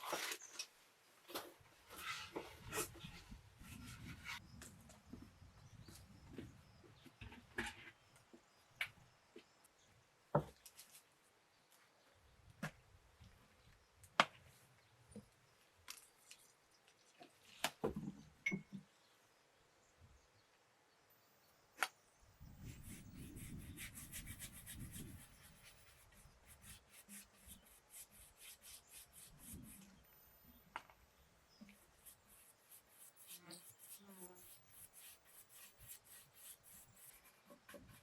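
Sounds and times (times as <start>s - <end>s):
brush rubbing on wood: 22.6s - 29.9s, 31.7s - 38.0s.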